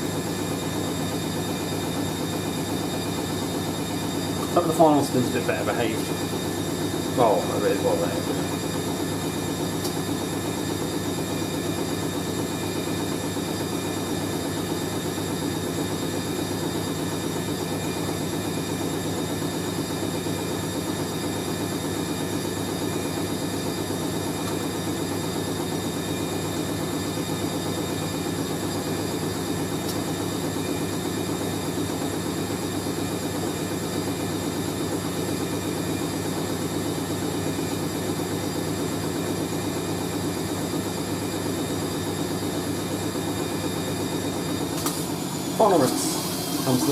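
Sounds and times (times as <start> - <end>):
washing machine spinning: 0.0 - 46.9.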